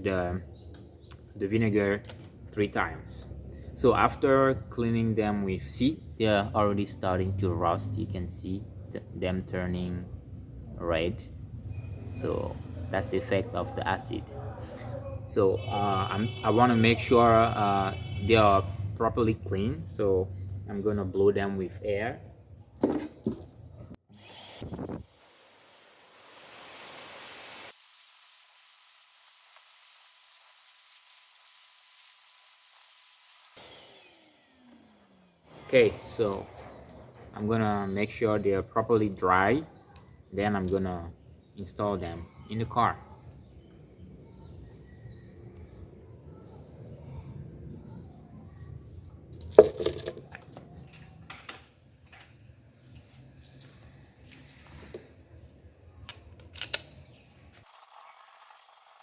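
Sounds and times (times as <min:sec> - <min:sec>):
compressed air blow gun hissing: 0:24.2 - 0:34.0, 0:35.5 - 0:36.4
metal spark plugs clinking: 0:49.3 - 0:52.5, 0:56.1 - 0:57.1.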